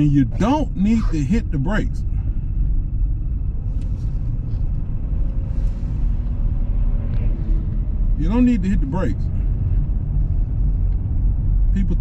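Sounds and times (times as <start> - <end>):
car driving on icy road: 0.0 - 12.0.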